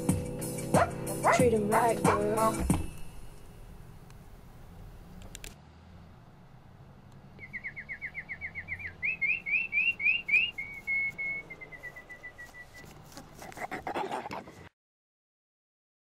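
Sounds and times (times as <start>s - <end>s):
songbird whistling: 7.4s - 12.9s
short rustle: 10.4s - 13.9s.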